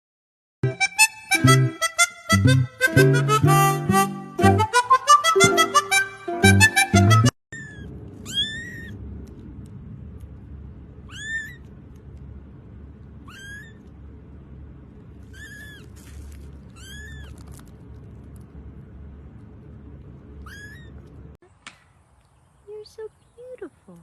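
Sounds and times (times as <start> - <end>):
cat meowing: 7.6 - 9.0, 11.0 - 11.7, 13.2 - 13.9, 15.2 - 16.0, 16.7 - 17.6, 20.4 - 21.2
steady low hum: 7.6 - 24.0.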